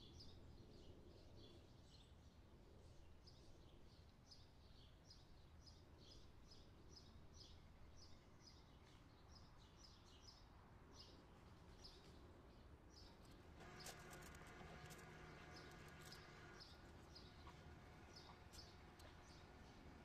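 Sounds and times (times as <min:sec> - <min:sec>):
faint bird chirping: 0:00.0 - 0:20.0
low steady hum: 0:13.1 - 0:20.0.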